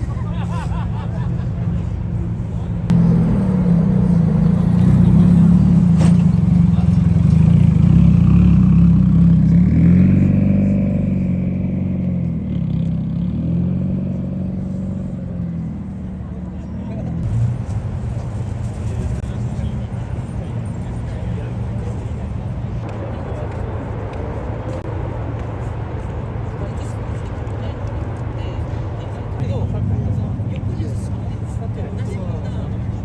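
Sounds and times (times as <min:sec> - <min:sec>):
car engine running: 0:00.0 - 0:22.8.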